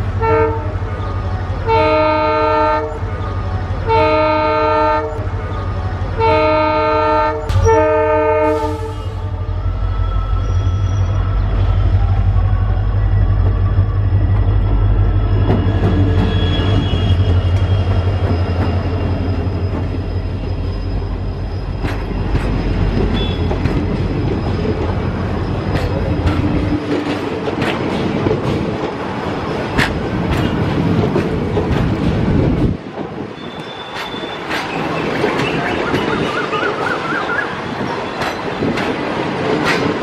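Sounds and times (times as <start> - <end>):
locomotive engine drone: 0.0 - 40.0
high wheel squeals: 14.0 - 27.2, 33.3 - 38.7
train wheel clicks: 21.7 - 32.4, 33.0 - 36.2, 38.1 - 40.0.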